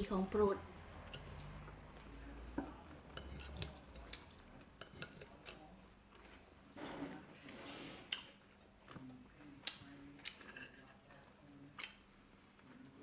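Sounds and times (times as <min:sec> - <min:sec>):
cutlery clinking against plate: 0:02.6 - 0:05.6.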